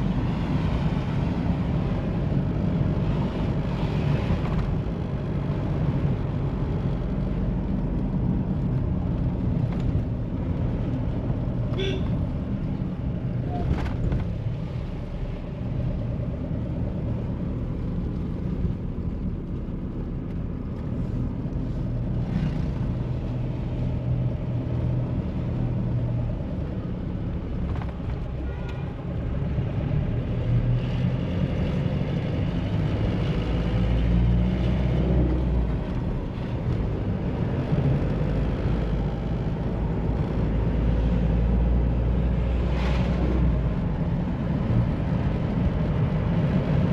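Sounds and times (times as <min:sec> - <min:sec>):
road and tyre noise: 0:00.0 - 0:46.9.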